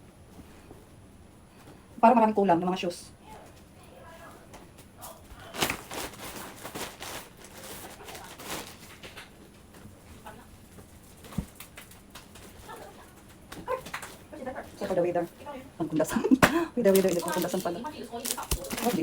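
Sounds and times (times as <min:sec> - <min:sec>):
packaging and clothes rustling: 0:04.6 - 0:15.4, 0:16.8 - 0:19.0.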